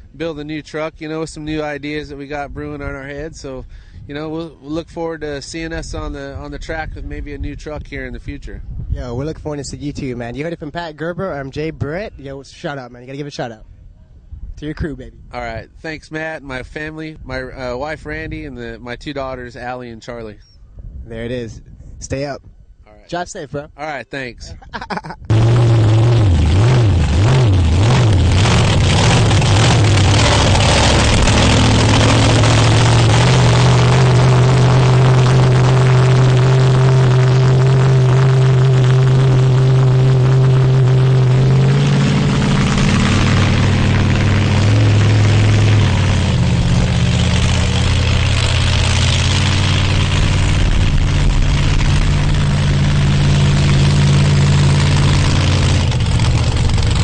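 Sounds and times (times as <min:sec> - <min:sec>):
loud truck engine running: 0:25.3 - 0:57.0.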